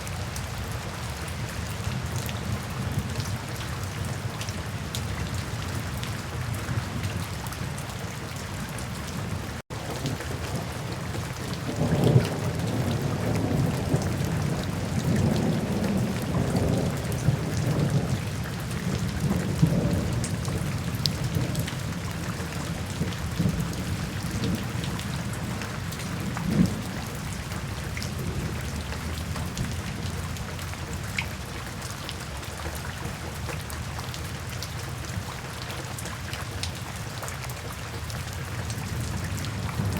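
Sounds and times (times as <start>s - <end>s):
steady rain falling: 0.0s - 39.9s
rolling thunder: 9.4s - 30.5s, 38.8s - 39.9s.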